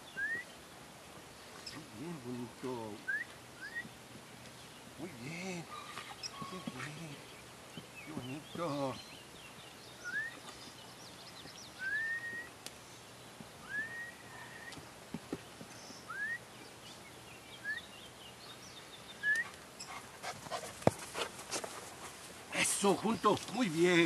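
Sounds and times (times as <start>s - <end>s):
bird whistling: 0.1s - 0.5s, 3.1s - 3.9s, 10.0s - 10.5s, 11.8s - 12.5s, 13.6s - 14.8s, 16.1s - 16.4s, 17.6s - 17.9s, 19.2s - 19.5s
faint higher chirps: 10.0s - 12.6s.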